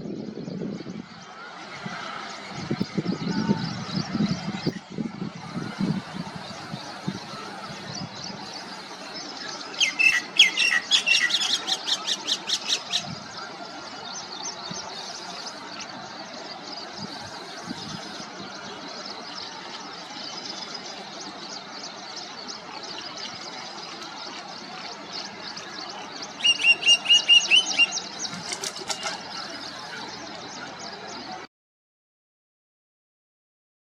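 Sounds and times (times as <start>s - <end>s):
birds chirping: 0.0s - 31.5s
outdoor background hiss: 5.6s - 31.1s.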